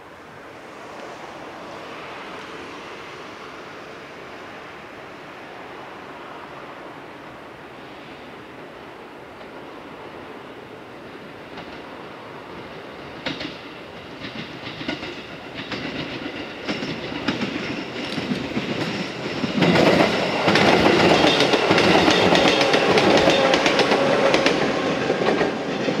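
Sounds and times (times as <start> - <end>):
train wheels clacking over joints: 12.6 - 26.0.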